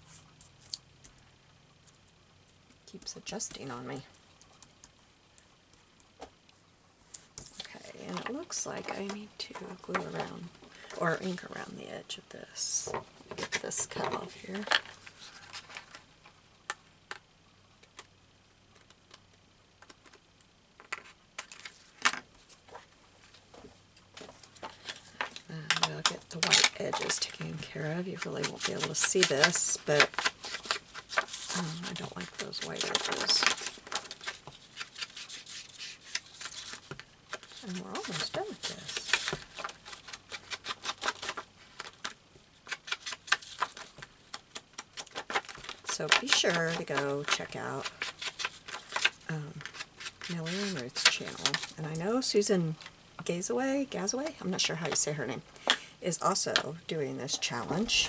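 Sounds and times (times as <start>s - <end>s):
scissors snipping paper: 25.8s - 42.1s, 44.7s - 51.7s.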